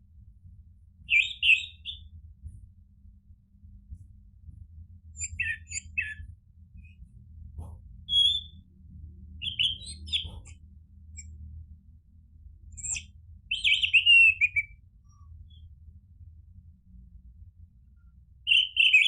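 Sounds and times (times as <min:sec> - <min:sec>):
thrush singing whistled phrases: 0:01.1 - 0:02.0, 0:05.2 - 0:06.2, 0:08.1 - 0:08.6, 0:09.4 - 0:10.3, 0:12.8 - 0:14.8.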